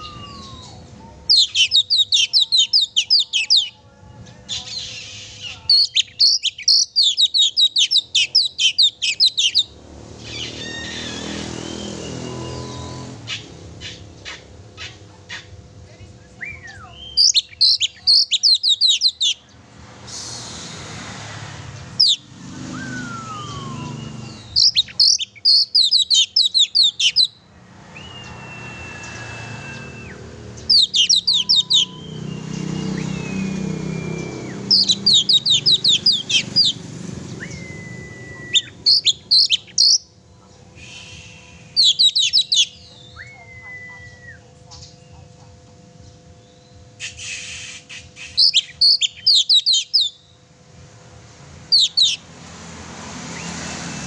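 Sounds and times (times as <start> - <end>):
bird singing chattering and whistles: 0.0 - 3.8, 4.4 - 15.6, 16.2 - 19.6, 21.9 - 45.3, 46.0 - 50.6, 51.7 - 52.3
low background rumble: 22.7 - 52.0.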